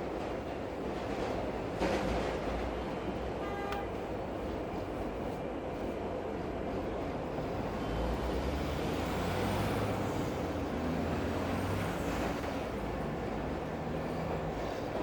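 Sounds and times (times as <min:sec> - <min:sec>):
large vehicle rumbling past: 0:07.7 - 0:14.6.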